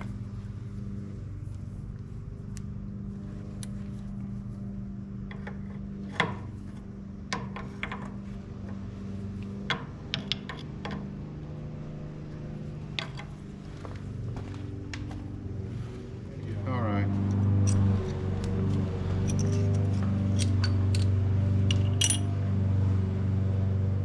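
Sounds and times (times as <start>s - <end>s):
low mechanical hum: 0.0s - 24.0s
metallic clinks of hand tools: 21.7s - 22.3s.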